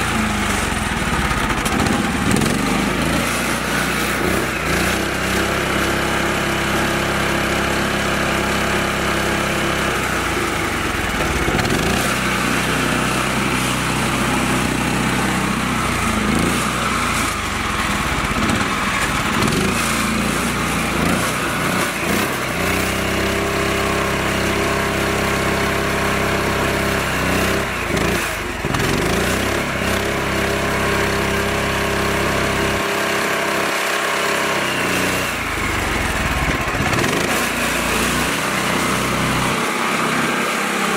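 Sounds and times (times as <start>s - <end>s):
small tractor engine running: 0.0s - 40.9s.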